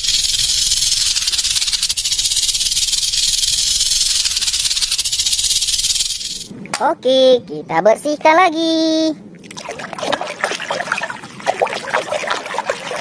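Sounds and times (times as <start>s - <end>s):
snake hissing: 0.0s - 6.5s.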